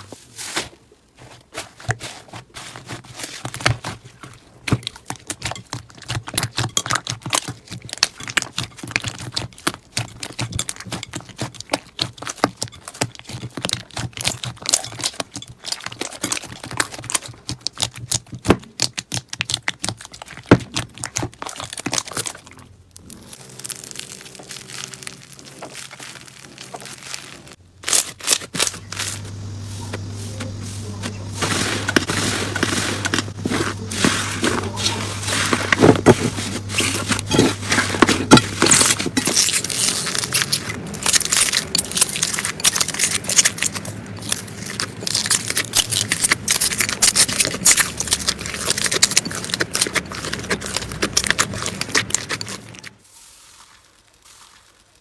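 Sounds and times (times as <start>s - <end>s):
slime crackling and popping: 2.8s - 53.0s
low hum: 28.6s - 52.8s.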